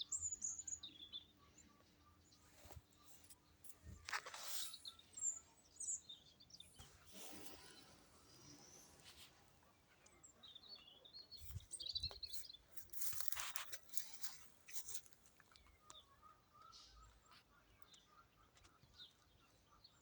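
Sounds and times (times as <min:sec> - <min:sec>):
birds chirping: 0:00.0 - 0:20.0
soil crunching and rustling: 0:11.4 - 0:15.7.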